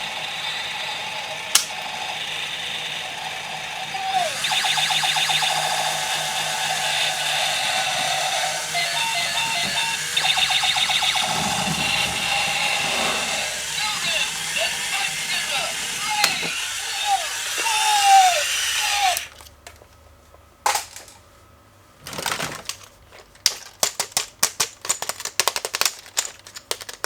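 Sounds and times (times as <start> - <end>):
tinny electronic tune: 4.1 - 17.3
toy gearbox rattling clicks: 13.6 - 19.5, 22.1 - 27.0.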